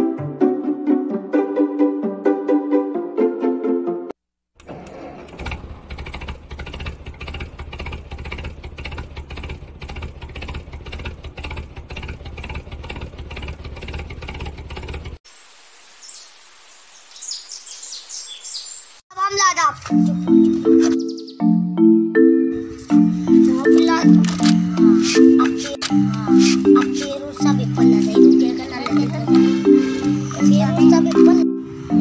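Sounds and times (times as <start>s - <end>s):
engine running with low rumble: 4.8s - 15.2s
faint bird chirps: 15.8s - 19.0s, 20.2s - 21.5s.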